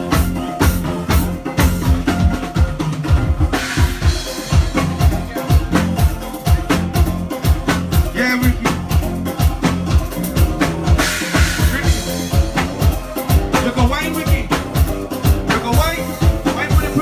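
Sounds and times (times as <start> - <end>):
drum kit beat: 0.0 - 17.0
live band playing: 0.0 - 17.0
person singing: 3.6 - 17.0.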